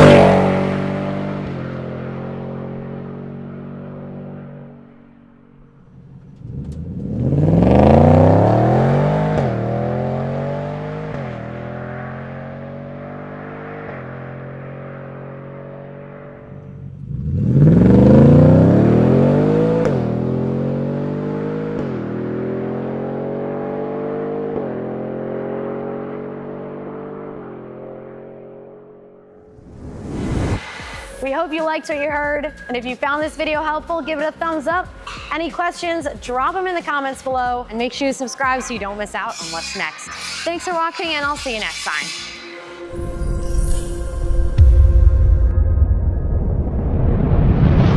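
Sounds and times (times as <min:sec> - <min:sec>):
truck engine accelerating hard: 0:00.0 - 0:30.8.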